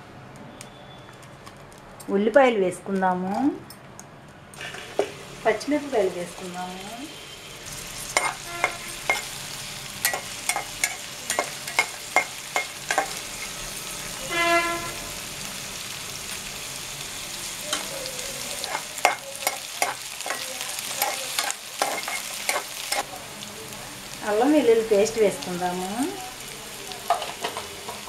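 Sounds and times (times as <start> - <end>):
onions sizzling in oil: 4.6 - 28.0
spatula scraping a pan: 7.8 - 9.3.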